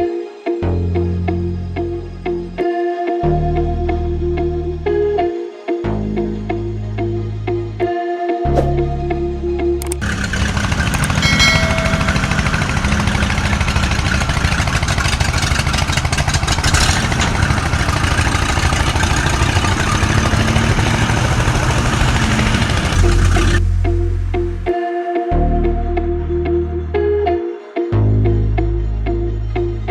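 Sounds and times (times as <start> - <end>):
tractor engine chugging: 9.8 - 23.6.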